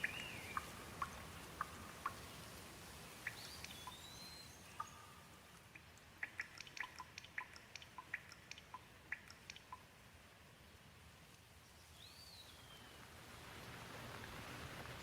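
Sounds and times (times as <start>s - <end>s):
gentle rain hiss: 0.0s - 15.0s
drops ticking on hard surface: 4.8s - 9.8s.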